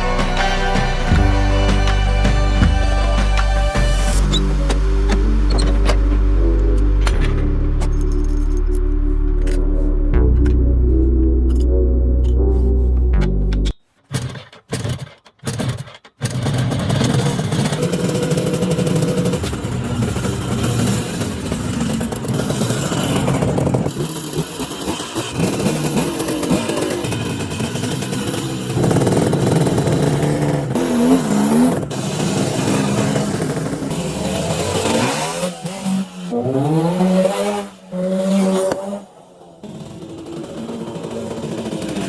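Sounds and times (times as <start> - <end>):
two-stroke motorbike engine running: 16.3 - 36.4, 38.7 - 42.0.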